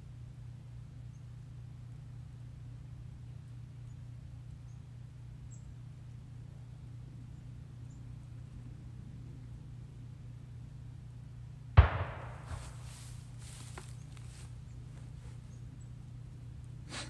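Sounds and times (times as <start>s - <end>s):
small birds chirping faintly: 0.0s - 17.0s
steady low rumble: 6.8s - 14.9s.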